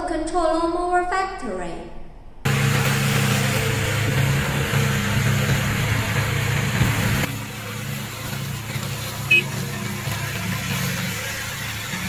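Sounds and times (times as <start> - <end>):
mower engine running: 2.5 - 12.0.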